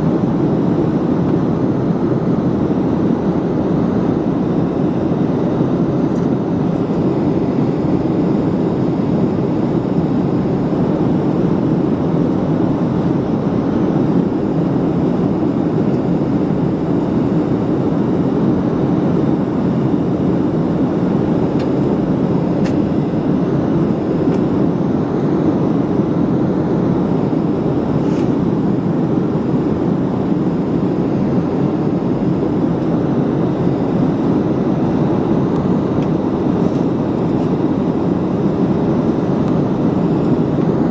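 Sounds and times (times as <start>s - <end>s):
jet engines roaring: 0.0s - 40.9s
rushing air: 26.3s - 32.1s.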